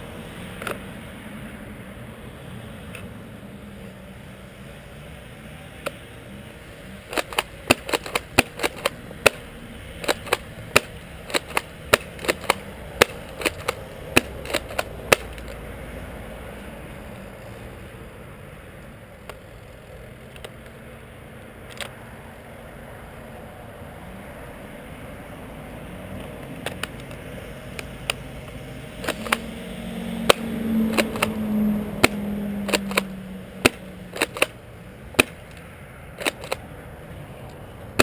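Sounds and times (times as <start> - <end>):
airsoft shotgun clacks and snaps: 7.1 - 15.6, 26.2 - 27.2, 27.8 - 29.5, 30.3 - 31.4, 32.0 - 34.6, 35.2 - 35.6, 36.2 - 36.6.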